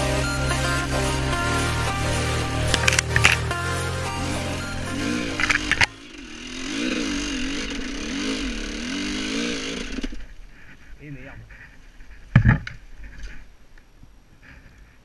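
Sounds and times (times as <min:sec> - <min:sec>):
background music: 0:00.0 - 0:07.1
motorcycle engine revving: 0:00.0 - 0:10.9.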